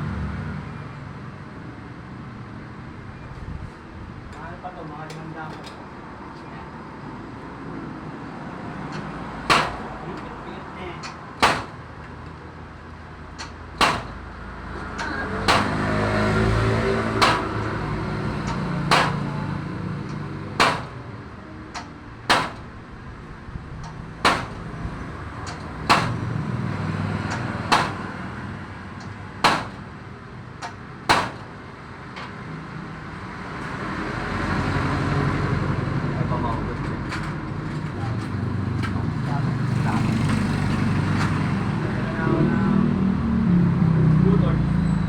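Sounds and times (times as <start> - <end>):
hammer blows on metal: 11.4 - 11.8, 13.4 - 14.2, 15.3 - 19.6, 20.6 - 21.1, 21.8 - 22.8, 24.2 - 26.4.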